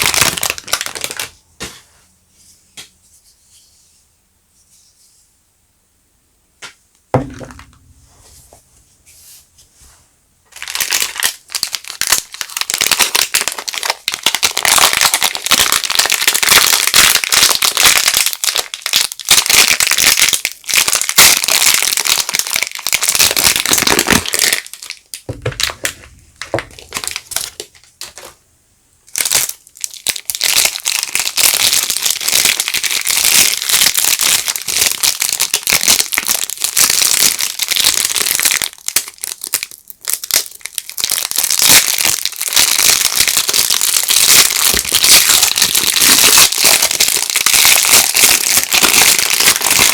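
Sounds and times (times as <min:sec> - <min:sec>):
soap wrapping crinkling: 0:00.0 - 0:01.4, 0:10.5 - 0:28.4, 0:29.1 - 0:49.9
single knock: 0:07.1 - 0:08.0.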